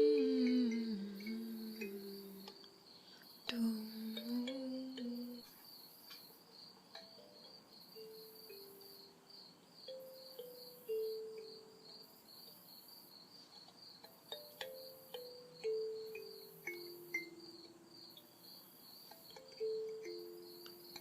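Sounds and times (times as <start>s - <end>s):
person humming a slow melody: 0.0s - 5.6s, 14.6s - 17.8s, 19.3s - 21.0s
high hiss: 0.0s - 9.0s
night insects trilling: 0.0s - 21.0s.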